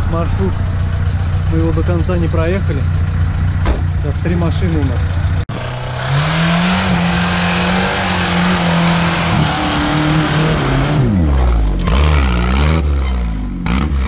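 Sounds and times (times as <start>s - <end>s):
engine revving hard: 5.5s - 14.0s.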